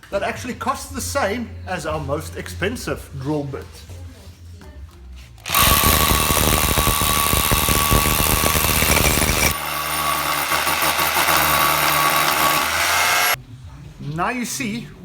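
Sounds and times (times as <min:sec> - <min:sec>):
hammer drill drilling: 0:05.4 - 0:13.4.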